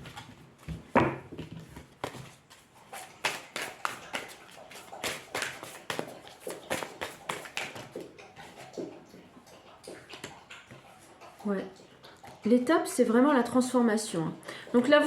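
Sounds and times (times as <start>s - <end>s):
cards being shuffled: 3.3s - 6.0s.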